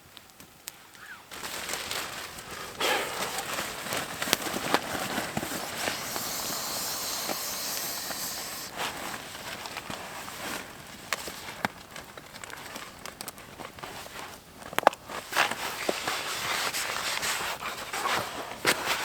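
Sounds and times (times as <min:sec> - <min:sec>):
campfire crackling and popping: 0:00.1 - 0:08.7.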